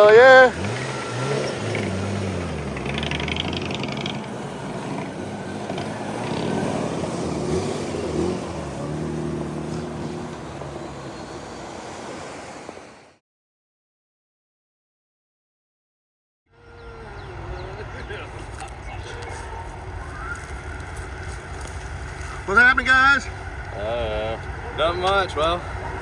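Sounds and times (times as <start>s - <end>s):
car engine running: 0.0s - 12.1s, 16.6s - 26.0s.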